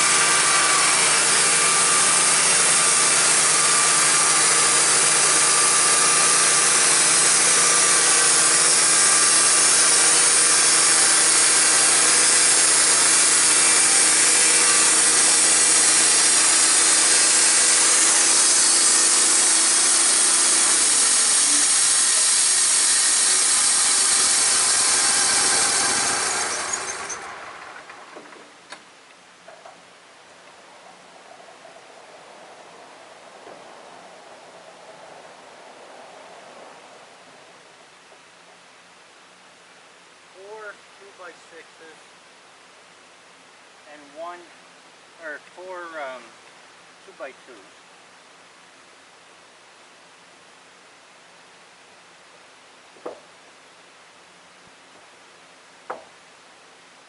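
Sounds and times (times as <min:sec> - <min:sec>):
band sawmill cutting: 0:00.0 - 0:28.4
soft hiss: 0:26.5 - 0:57.0.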